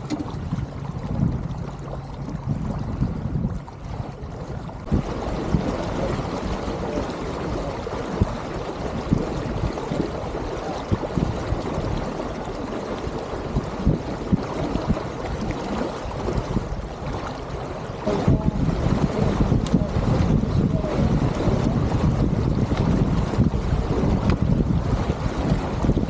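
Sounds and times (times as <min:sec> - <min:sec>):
small water splashes: 0:00.0 - 0:26.0
water rushing along boat hull: 0:00.0 - 0:26.0.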